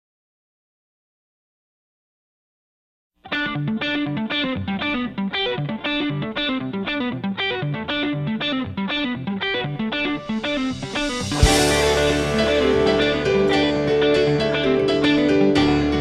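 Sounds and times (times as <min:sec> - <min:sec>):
electric guitar picking rapid notes: 0:03.3 - 0:16.0
cymbal swell: 0:10.3 - 0:15.2.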